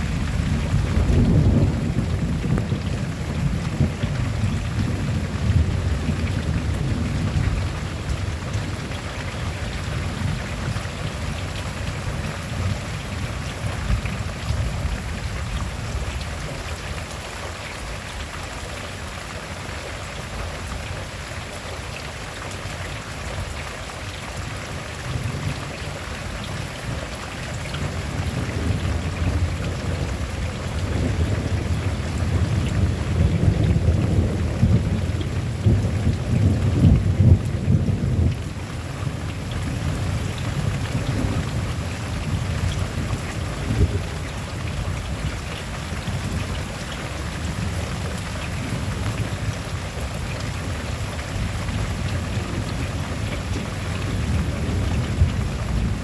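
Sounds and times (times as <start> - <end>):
sharp crack of thunder: 0.0 - 7.8
thunder rolling: 0.0 - 8.7
steady rain falling: 0.0 - 56.0.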